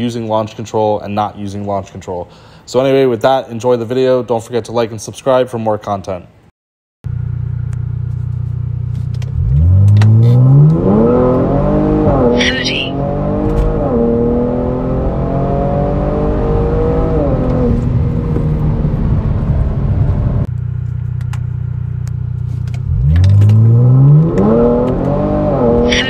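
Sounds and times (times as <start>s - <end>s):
car engine revving and idling: 7.1s - 26.0s.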